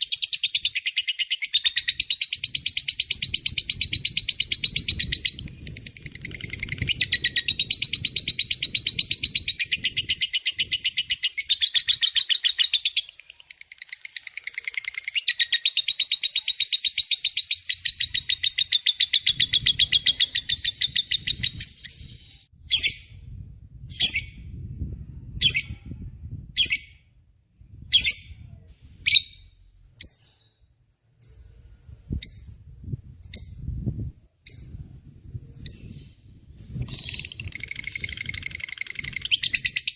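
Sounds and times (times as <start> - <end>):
lovebird fast trill: 36.6 - 39.9.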